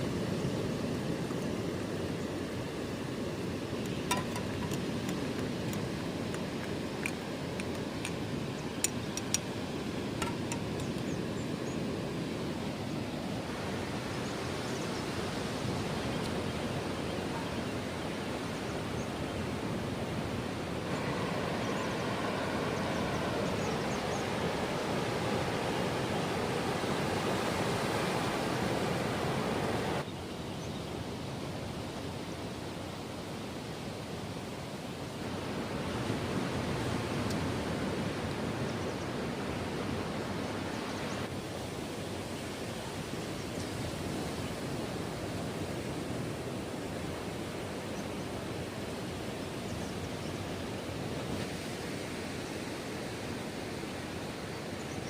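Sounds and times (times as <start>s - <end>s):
steady rushing night ambience: 0.0s - 30.6s
sharp ticks: 8.8s - 9.5s.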